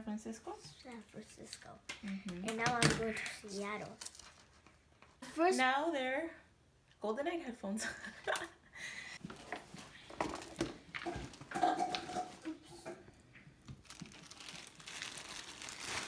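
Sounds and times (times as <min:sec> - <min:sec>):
plastic and paper crinkling: 0:03.1 - 0:05.2, 0:13.6 - 0:16.0.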